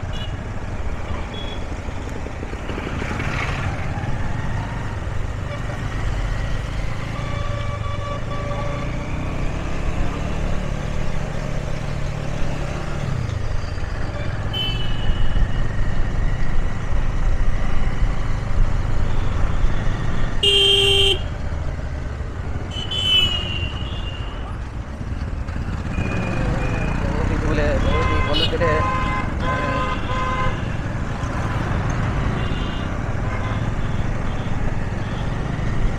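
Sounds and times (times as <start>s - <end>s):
motorbike engine and road rumble: 0.0s - 35.9s
vehicle horns honking: 14.5s - 15.3s, 20.4s - 21.3s, 22.7s - 24.5s, 27.7s - 30.9s.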